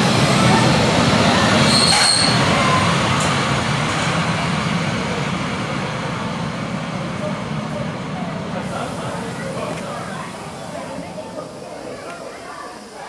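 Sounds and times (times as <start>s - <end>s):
train wheels running on rails: 0.0s - 13.0s
high squeal: 1.6s - 2.8s.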